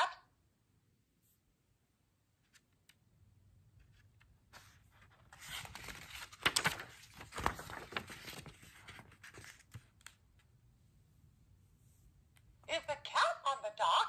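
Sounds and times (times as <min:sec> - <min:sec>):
stiff page being turned: 0:03.8 - 0:10.2.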